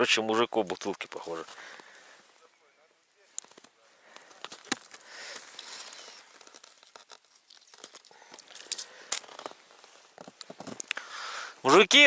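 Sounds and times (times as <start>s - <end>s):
crackling rustle: 0.0s - 2.5s, 3.1s - 11.8s
footsteps crunching on snow: 0.6s - 2.5s.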